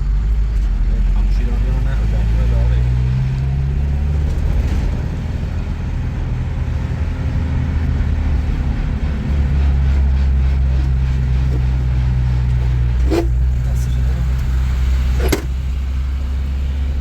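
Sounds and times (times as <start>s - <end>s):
low engine-like hum: 0.0s - 17.0s.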